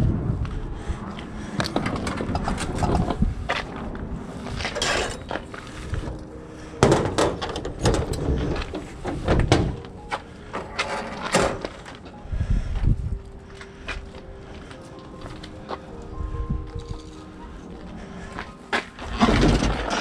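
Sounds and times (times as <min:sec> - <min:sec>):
refrigerator scraping: 0:04.5 - 0:12.1, 0:18.8 - 0:20.0
refrigerator knocks and clunks: 0:06.8 - 0:09.9.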